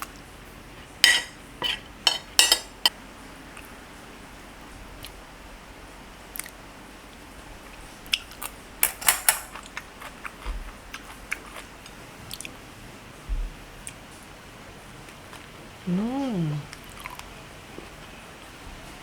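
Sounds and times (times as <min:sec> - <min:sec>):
chewing: 0:09.5 - 0:12.6, 0:16.7 - 0:18.0.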